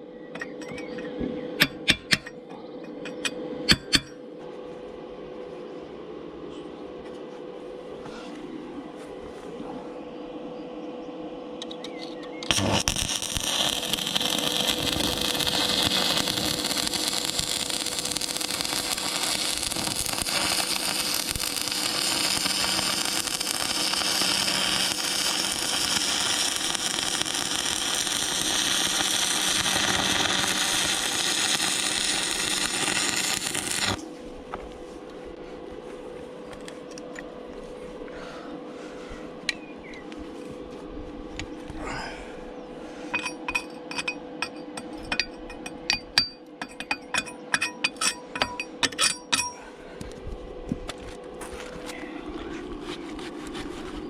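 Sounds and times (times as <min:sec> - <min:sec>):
faint steady hum: 0:00.0 - 0:54.0
angle grinder grinding steel: 0:12.5 - 0:34.0.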